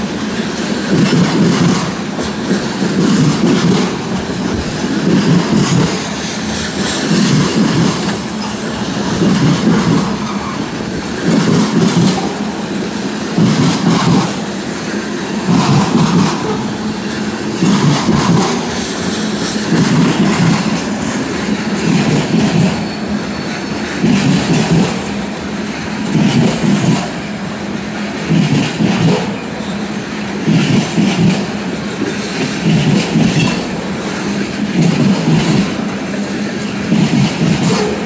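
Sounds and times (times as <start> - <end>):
low train rumble: 0.0 - 38.0
wheels clacking over rail joints: 0.0 - 38.0.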